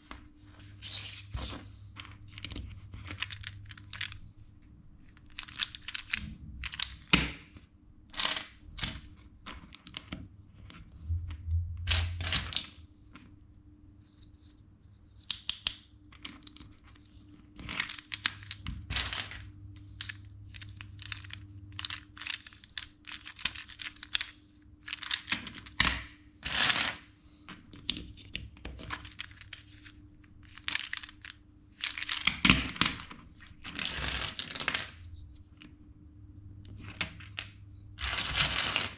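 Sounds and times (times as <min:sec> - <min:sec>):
faint steady hum: 0:00.0 - 0:38.9
plastic bricks clicking and snapping: 0:05.1 - 0:07.4, 0:15.2 - 0:16.8
pieces rustling: 0:16.1 - 0:25.8, 0:26.4 - 0:35.7, 0:36.7 - 0:38.9.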